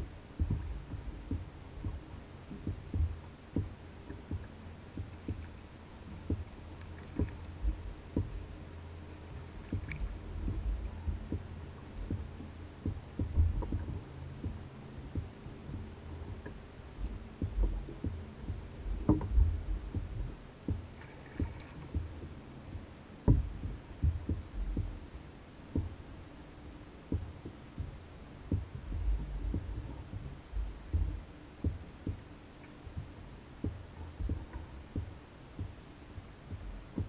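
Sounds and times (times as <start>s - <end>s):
water lapping against canoe hull: 0.0s - 26.1s, 27.1s - 37.0s
steady low rumble: 0.0s - 37.0s
hull knocks: 23.3s - 24.9s.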